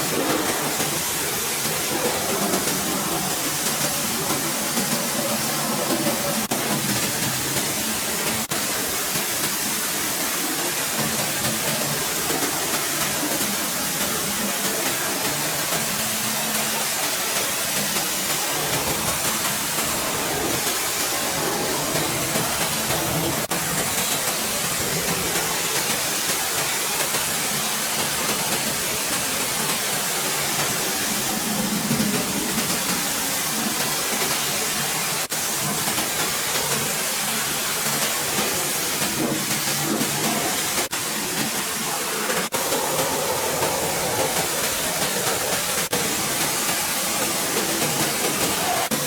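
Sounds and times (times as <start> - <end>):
hissing cleaning jet: 0.0 - 49.0.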